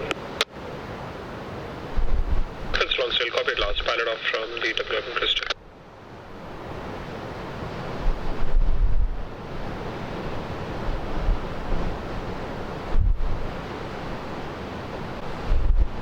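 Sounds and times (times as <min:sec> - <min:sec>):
rush of wind: 0:00.0 - 0:16.0
surf: 0:00.0 - 0:16.0
wind buffeting microphone: 0:00.9 - 0:03.0, 0:05.7 - 0:16.0.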